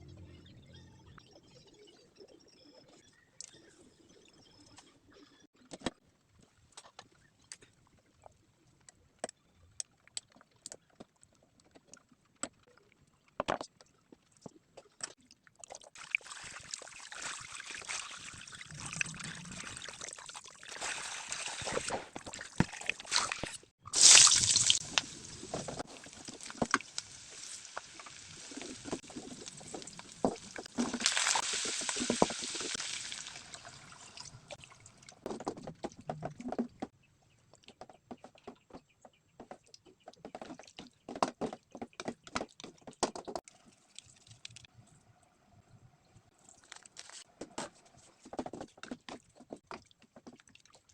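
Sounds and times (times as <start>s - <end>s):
water running and sloshing: 15.9s - 35.3s.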